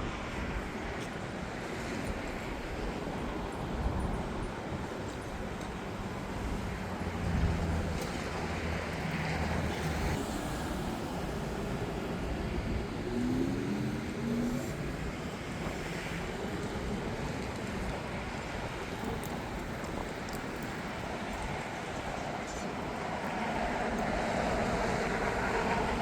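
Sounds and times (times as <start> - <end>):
jet engines roaring: 0.0 - 26.0
wind buffeting microphone: 0.0 - 26.0.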